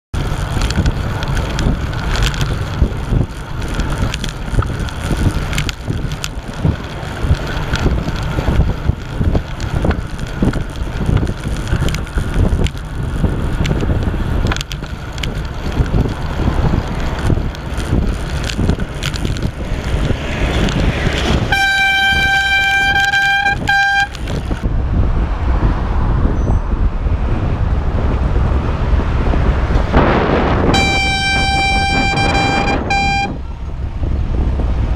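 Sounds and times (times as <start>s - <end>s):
wind rumble: 0.1s - 34.9s
bicycle air horn blast: 21.4s - 24.6s, 30.7s - 33.5s.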